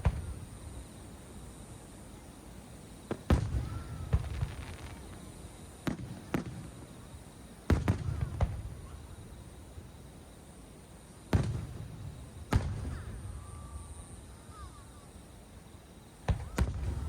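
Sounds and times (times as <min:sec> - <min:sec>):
fireworks bursting with rumbling echo: 0:00.0 - 0:01.0, 0:03.0 - 0:10.0, 0:11.3 - 0:14.4, 0:16.2 - 0:17.0.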